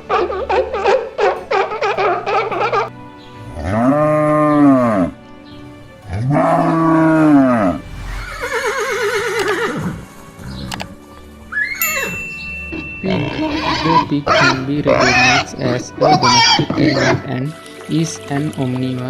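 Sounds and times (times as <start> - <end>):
background music: 0.0 - 19.0
cow mooing: 3.5 - 5.2, 6.1 - 9.8.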